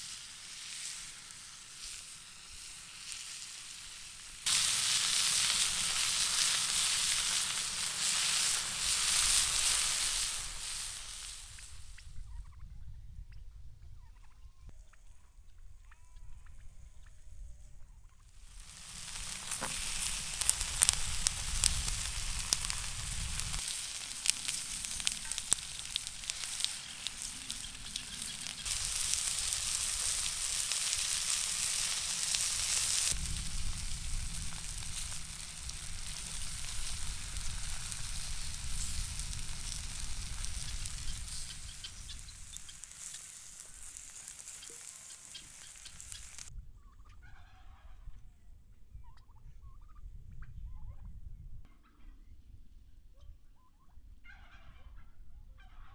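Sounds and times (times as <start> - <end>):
oil popping: 0.0 - 12.0, 18.5 - 46.5
food sizzling in a pan: 0.0 - 12.1, 18.4 - 46.5.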